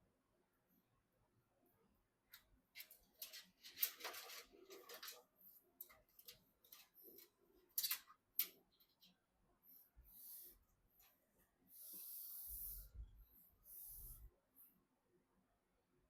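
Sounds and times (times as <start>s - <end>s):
faint handling scrapes and clicks: 2.4s - 9.2s.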